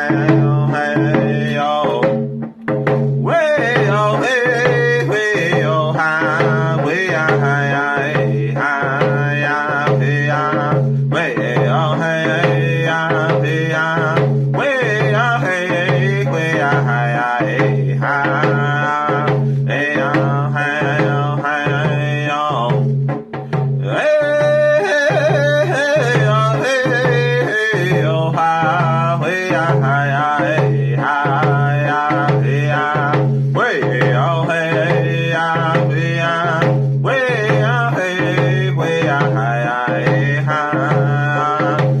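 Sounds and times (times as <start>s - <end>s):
man singing vocables: 0.0s - 2.3s, 3.2s - 22.9s, 23.8s - 42.0s
hand drum beat: 0.0s - 42.0s.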